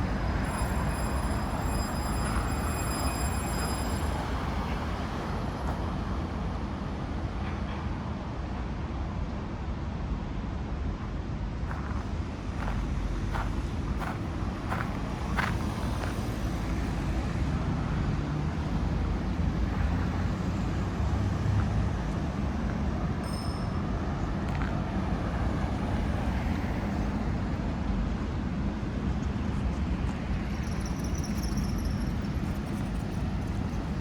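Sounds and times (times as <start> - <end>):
passing cars and trucks: 0.0 - 34.0.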